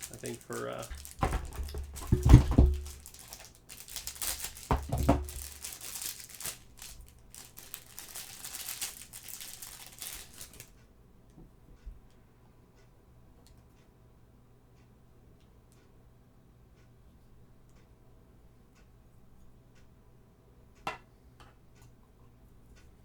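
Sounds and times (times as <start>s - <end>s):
heavy handling bumps: 0.0s - 7.7s
plastic packaging crinkling: 0.0s - 10.7s.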